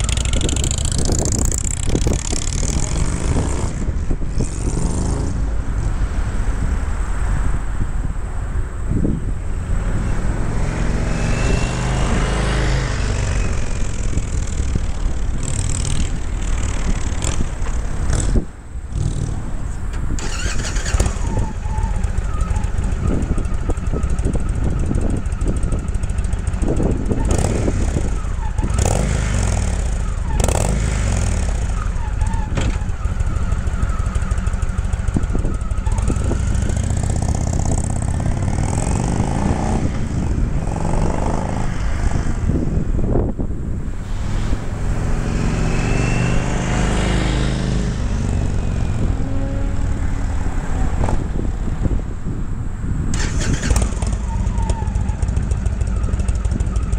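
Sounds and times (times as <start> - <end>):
motorcycle engine idling and revving: 0.0 - 56.9.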